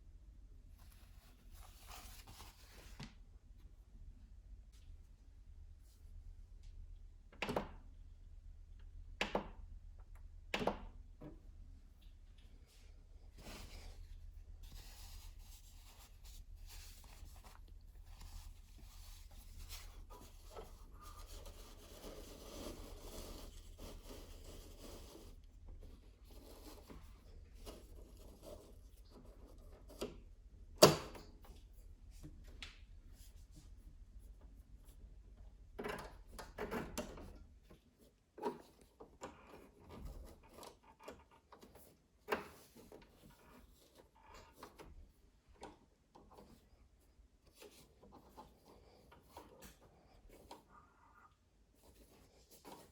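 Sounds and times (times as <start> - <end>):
rubbing and scraping of parts: 13.3 - 30.0.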